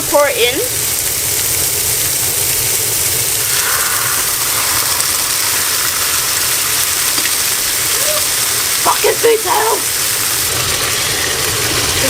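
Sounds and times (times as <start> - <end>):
food sizzling in a hot pan: 0.0 - 12.0
low rumble: 2.4 - 8.8.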